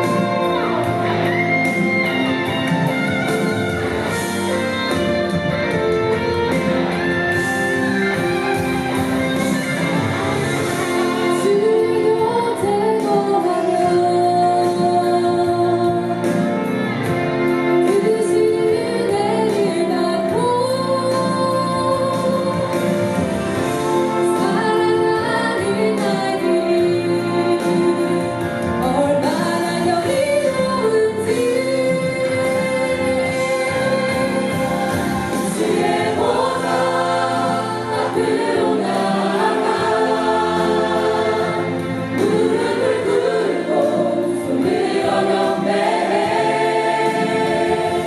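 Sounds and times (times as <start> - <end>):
instrumental accompaniment: 0.0 - 48.0
woman singing worship song: 11.2 - 16.5, 17.8 - 23.2, 24.2 - 48.0.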